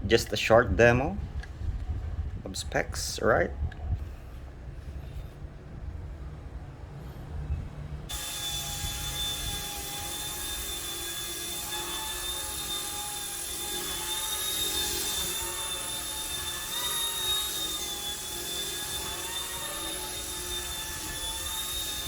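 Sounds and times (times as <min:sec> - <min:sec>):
rc helicopter motor whining: 0:08.1 - 0:22.0.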